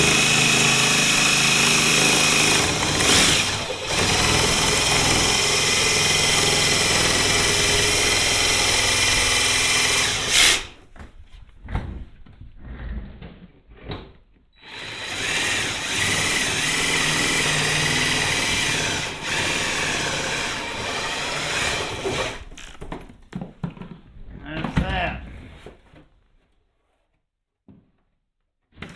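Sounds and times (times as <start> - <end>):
reciprocating saw cutting metal panel: 0.0 - 10.8, 14.6 - 22.8.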